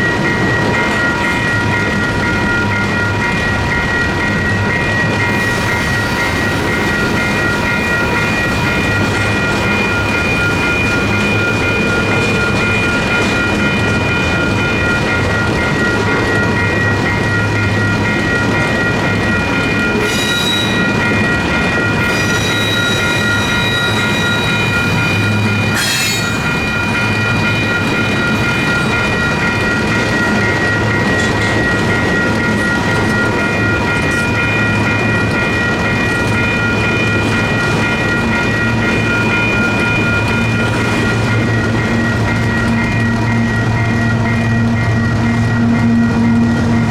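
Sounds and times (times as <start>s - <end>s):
crossing signal bell ringing: 0.0s - 46.9s
freight train wheels clattering: 0.0s - 46.9s
high-pitched wheel squeals: 20.0s - 21.0s, 22.0s - 27.3s.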